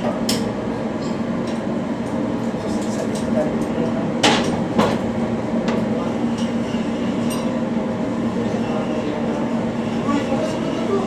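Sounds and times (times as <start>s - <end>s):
machinery drone: 5.2s - 11.0s.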